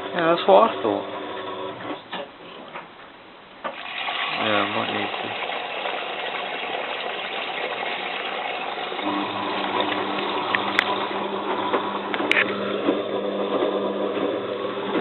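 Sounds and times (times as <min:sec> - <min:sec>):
washing machine taking in water: 0:03.7 - 0:15.0
low motor hum: 0:08.9 - 0:15.0.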